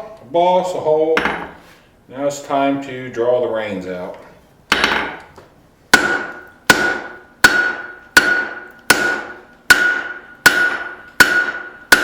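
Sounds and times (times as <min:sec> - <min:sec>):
hammer striking hot steel: 0:04.7 - 0:05.3, 0:05.9 - 0:12.0.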